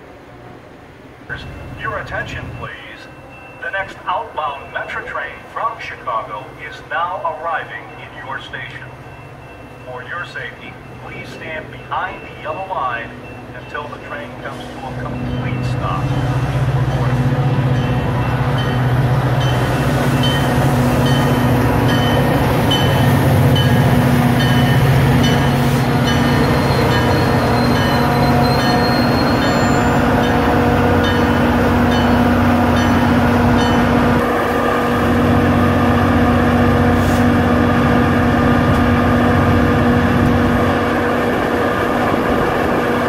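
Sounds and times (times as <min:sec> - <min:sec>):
diesel locomotive engine humming: 0:00.0 - 0:43.0
train rumbling on rails: 0:00.0 - 0:43.0
faint high squeal: 0:26.3 - 0:30.2.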